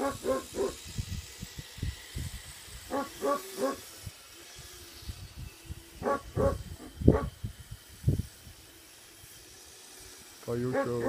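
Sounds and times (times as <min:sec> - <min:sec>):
dog barking: 0:00.0 - 0:00.8, 0:02.9 - 0:03.8, 0:06.0 - 0:07.3, 0:10.7 - 0:11.0.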